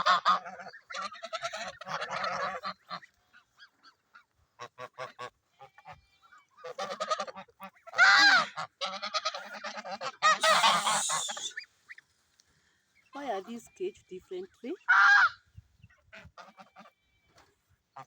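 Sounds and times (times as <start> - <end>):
geese honking: 0.0 - 3.2, 4.0 - 11.6.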